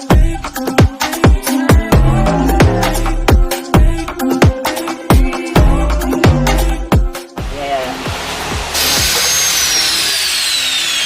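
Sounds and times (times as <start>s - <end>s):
dance music with heavy beat: 0.0s - 9.7s
workshop tool rushing hiss: 7.8s - 11.0s.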